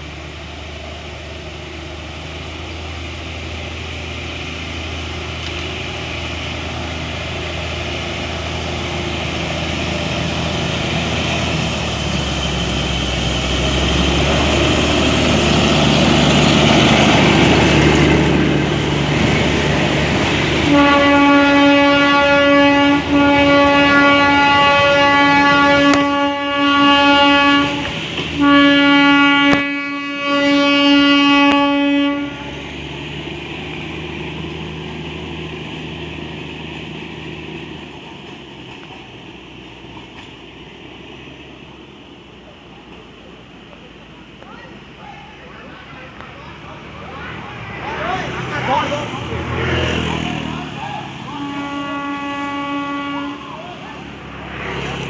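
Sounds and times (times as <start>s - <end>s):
train horn blasts: 20.6s - 32.6s, 51.3s - 53.8s.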